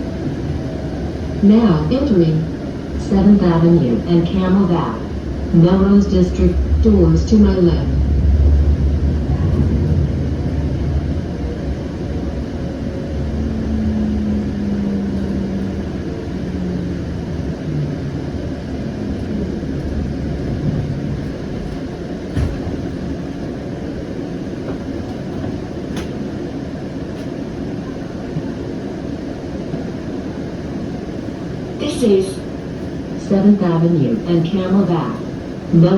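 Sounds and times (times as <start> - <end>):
quiet steady hum: 0.0 - 25.2
electric train drive whining: 0.0 - 33.8
train low rumble: 0.0 - 35.9.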